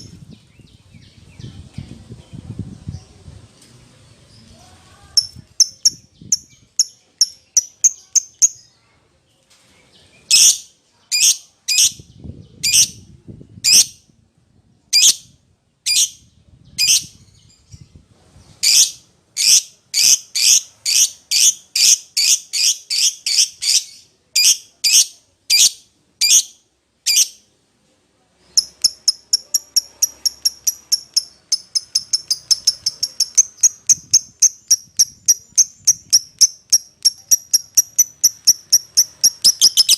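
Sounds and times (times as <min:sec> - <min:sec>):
lovebird shrill calls and chattering: 0:05.2 - 0:08.6, 0:10.3 - 0:12.0, 0:12.6 - 0:13.0, 0:13.6 - 0:14.0, 0:15.9 - 0:16.2, 0:16.8 - 0:17.2, 0:18.6 - 0:27.4, 0:28.5 - 0:39.9.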